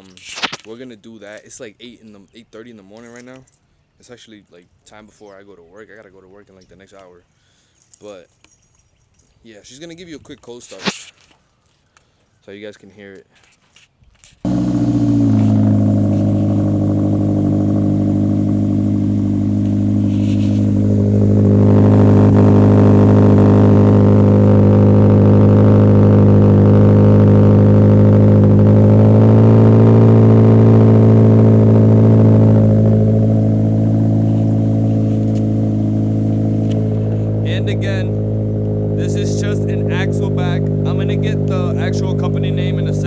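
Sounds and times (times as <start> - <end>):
car engine idling: 14.5 - 43.0.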